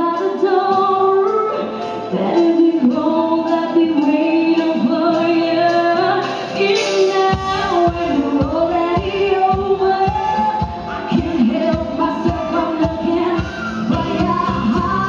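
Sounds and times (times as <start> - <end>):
woman singing: 0.0 - 15.0
steady drum beat: 6.2 - 15.0.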